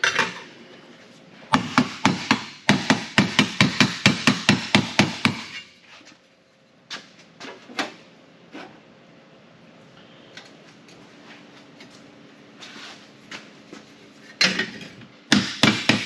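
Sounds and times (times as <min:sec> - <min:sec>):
hammer striking sheet metal: 0:01.5 - 0:05.7.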